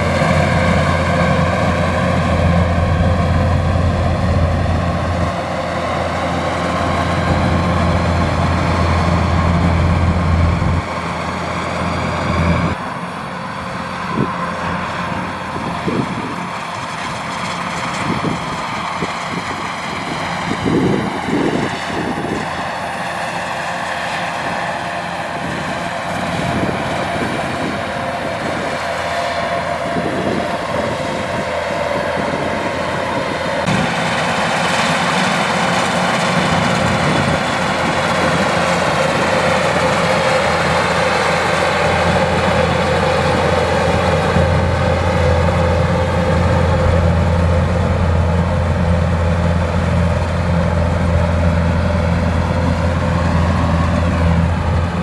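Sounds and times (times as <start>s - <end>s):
strong low hum: 0.0s - 10.9s
combine harvester running: 0.0s - 55.0s.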